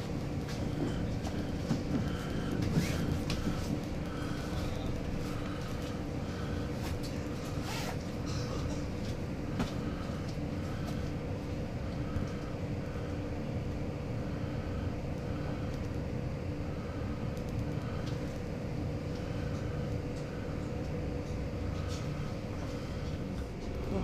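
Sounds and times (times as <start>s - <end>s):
faint steady hum: 0.0s - 24.0s
train rumbling: 0.0s - 24.0s.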